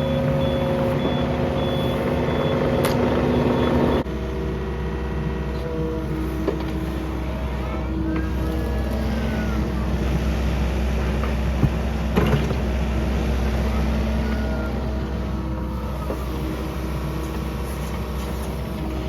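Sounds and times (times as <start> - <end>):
high beeping alarm: 0.0 - 4.0
excavator diesel engine running: 0.0 - 19.0.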